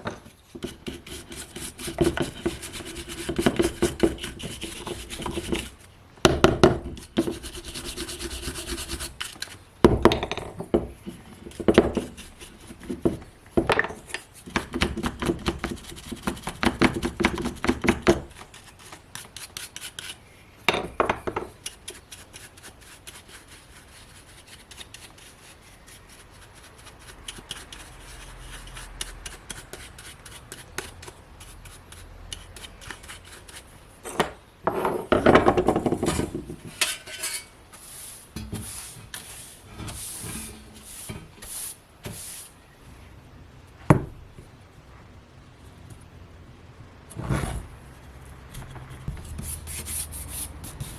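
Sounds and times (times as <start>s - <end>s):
scraping and rubbing on metal parts: 0.0s - 5.9s, 6.8s - 9.7s, 13.8s - 20.4s, 21.2s - 42.6s, 47.1s - 50.9s.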